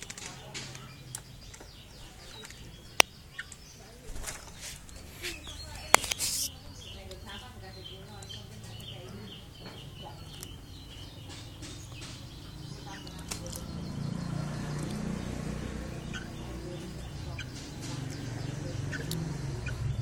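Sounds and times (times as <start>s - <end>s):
wing flutters: 4.0s - 6.5s
bird short chirps: 4.8s - 6.6s.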